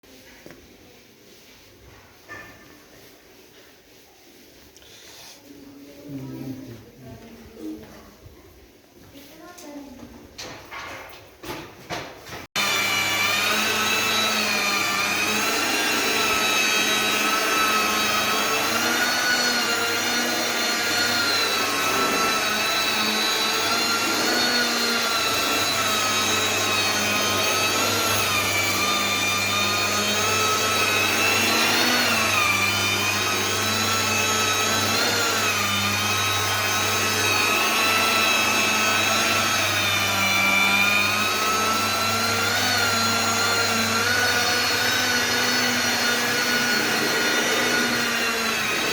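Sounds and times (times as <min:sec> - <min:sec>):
vacuum cleaner running: 0:12.6 - 0:48.9.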